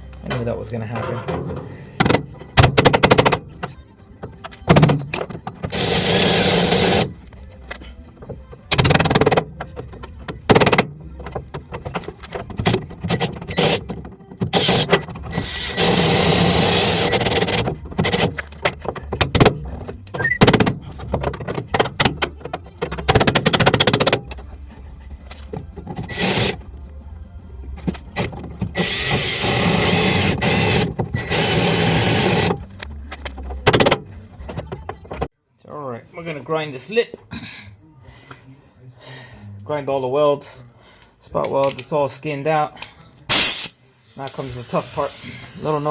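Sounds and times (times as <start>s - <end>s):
power drill boring into metal: 5.7s - 7.1s, 14.6s - 17.6s
metal knocks and taps: 17.4s - 24.4s.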